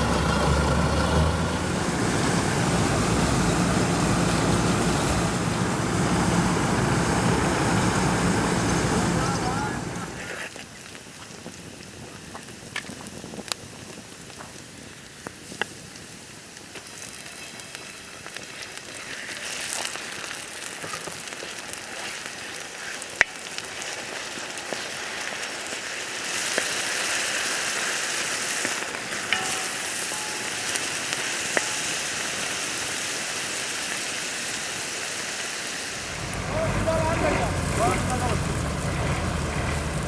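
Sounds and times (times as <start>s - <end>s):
fire popping: 0.0s - 10.4s, 35.7s - 40.0s
food sizzling in a pan: 13.1s - 36.4s.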